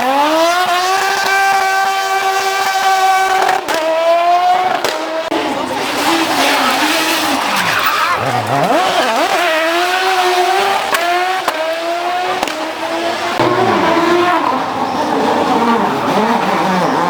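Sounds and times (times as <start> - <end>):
rally car engine revving: 0.0 - 17.0
sharp cracks: 12.4 - 12.7.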